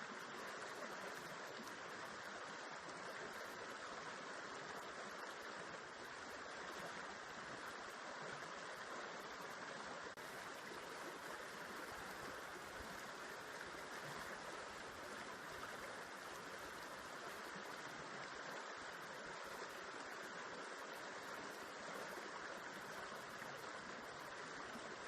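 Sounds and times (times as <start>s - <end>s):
river water flowing: 0.0s - 25.0s.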